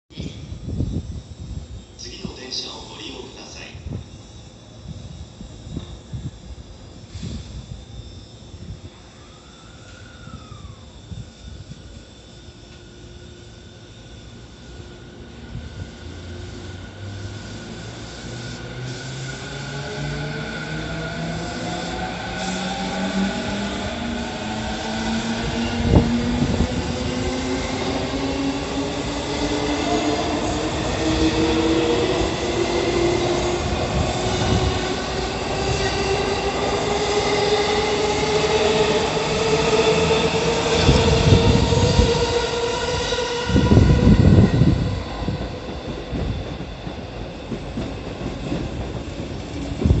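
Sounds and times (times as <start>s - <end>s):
electric train motor whine: 3.4s - 46.5s
train wheel knocks and rumble: 45.3s - 50.0s.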